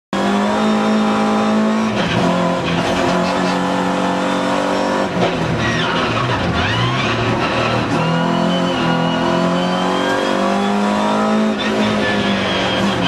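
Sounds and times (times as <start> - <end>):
race car engine at high revs: 0.1 - 13.0.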